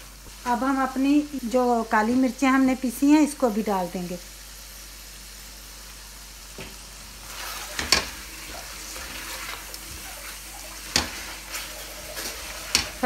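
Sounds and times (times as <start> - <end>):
meat sizzling in oil: 0.0 - 13.0
spatula stirring and scraping: 7.2 - 13.0.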